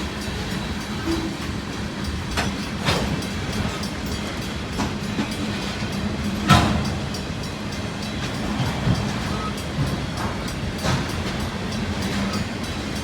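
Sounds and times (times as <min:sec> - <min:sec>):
freight train rumble: 0:00.0 - 0:13.0
train wheel clicks and knocks: 0:00.0 - 0:13.0.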